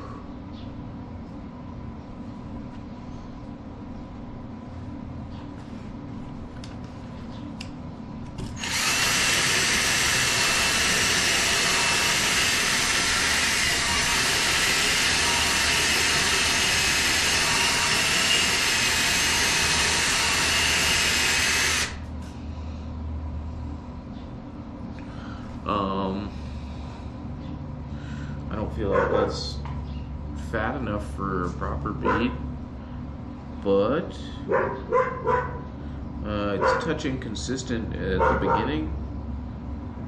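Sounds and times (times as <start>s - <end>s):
welding arc: 8.6s - 22.0s.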